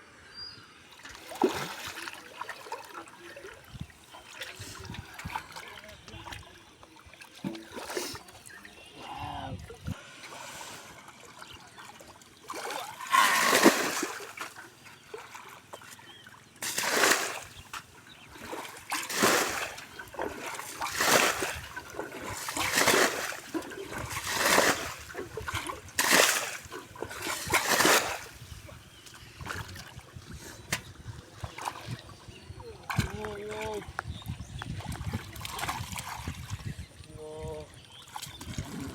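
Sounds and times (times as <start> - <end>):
hand splashing river water: 0.9 - 33.9.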